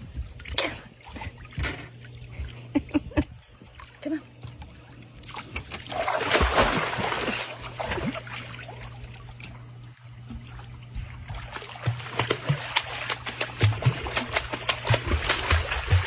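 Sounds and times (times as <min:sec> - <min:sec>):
water splashing and trickling: 0:03.5 - 0:16.0.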